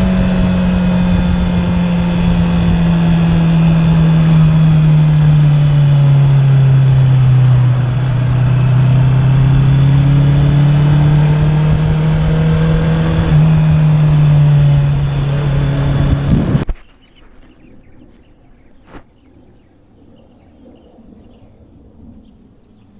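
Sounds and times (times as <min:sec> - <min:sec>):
motorcycle engine running: 0:00.0 - 0:16.7.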